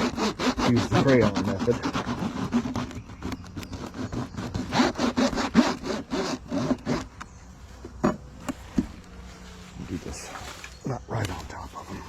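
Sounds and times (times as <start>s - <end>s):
beeswax scraping on hive frame: 0.0s - 7.9s.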